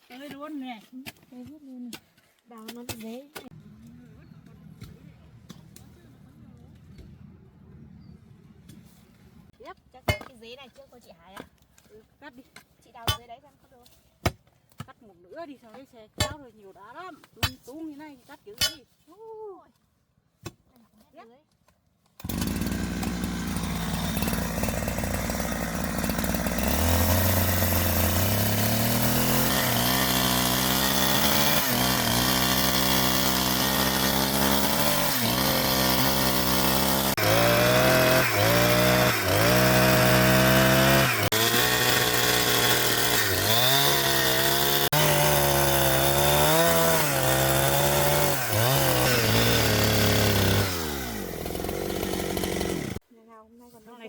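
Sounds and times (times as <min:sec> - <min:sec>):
chainsaw engine: 0:22.2 - 0:53.0.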